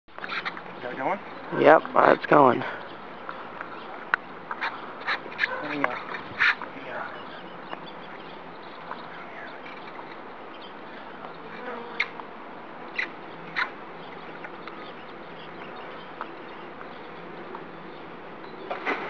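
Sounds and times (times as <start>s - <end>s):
bees buzzing: 9.8s - 18.9s.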